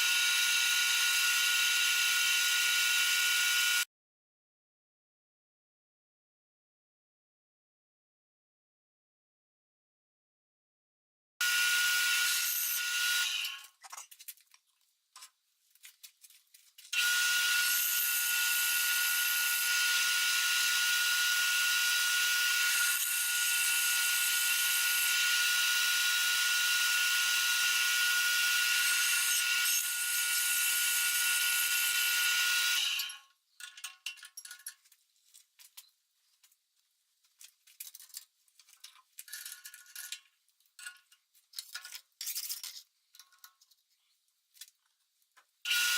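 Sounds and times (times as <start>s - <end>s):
power tool whining: 0.0s - 3.8s, 11.4s - 13.6s, 17.0s - 33.2s, 45.7s - 45.9s.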